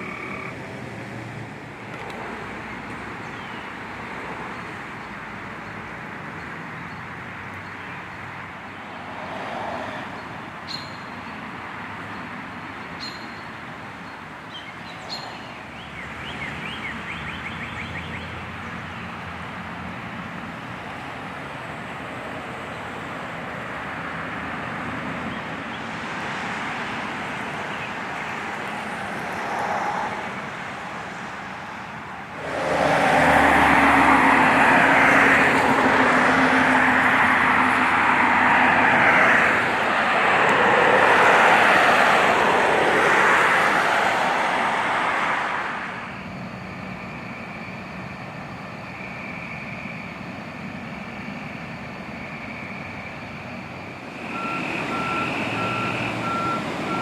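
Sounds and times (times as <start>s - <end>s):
loud rushing noise: 31.5s - 46.6s
truck reversing beeper: 46.0s - 57.0s.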